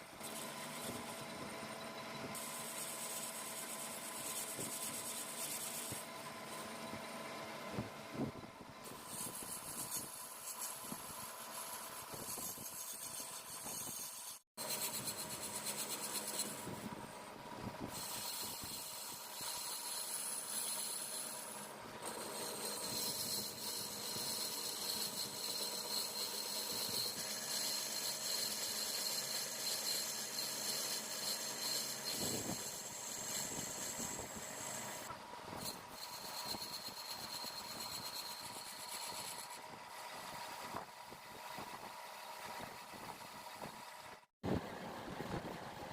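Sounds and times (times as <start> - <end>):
metal lathe cutting with whine: 0.1 - 8.1, 14.6 - 40.7.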